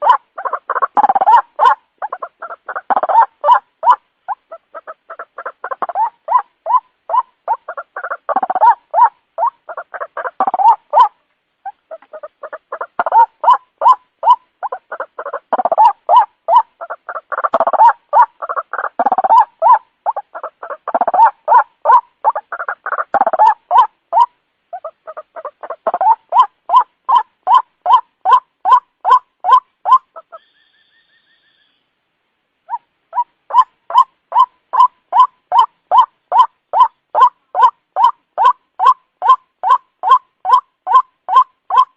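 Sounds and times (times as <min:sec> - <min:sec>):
waterhen croaking calls: 0:00.0 - 0:32.0, 0:32.6 - 0:41.9.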